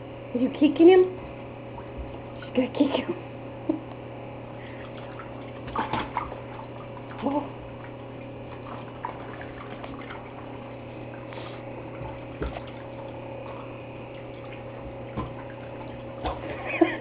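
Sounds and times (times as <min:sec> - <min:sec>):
low hum: 0:00.0 - 0:17.0
bath water splashing: 0:04.4 - 0:17.0.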